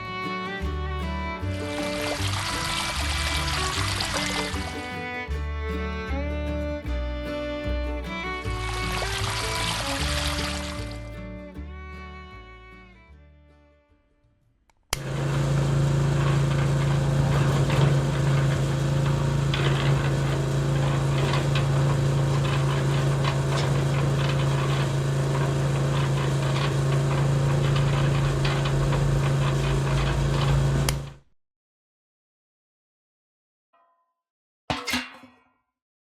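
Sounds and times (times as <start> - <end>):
small motor humming: 1.5 - 5.7, 8.2 - 11.2, 15.0 - 31.2.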